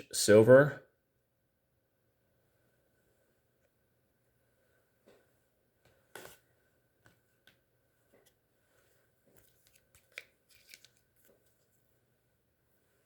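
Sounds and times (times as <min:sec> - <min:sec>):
trading cards clicking and rustling: 0:09.3 - 0:11.6.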